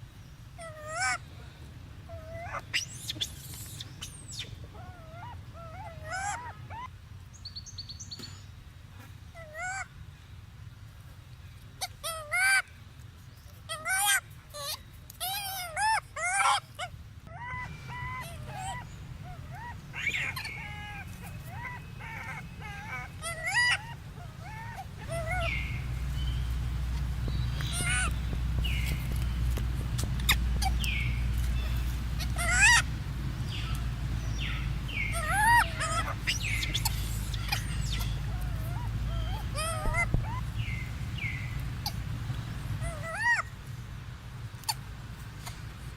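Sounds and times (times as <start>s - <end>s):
monkey calling: 0.6s - 1.2s, 2.1s - 6.9s, 9.4s - 9.9s, 11.8s - 12.6s, 13.7s - 43.6s
low hum: 17.7s - 45.8s.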